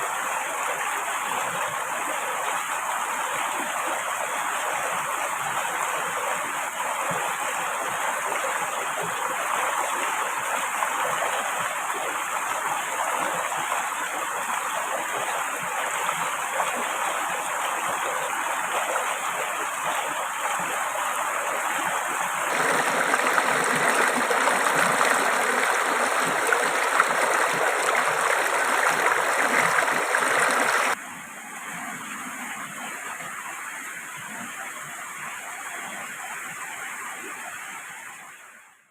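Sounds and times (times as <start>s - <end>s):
river water rushing: 16.8s - 31.0s.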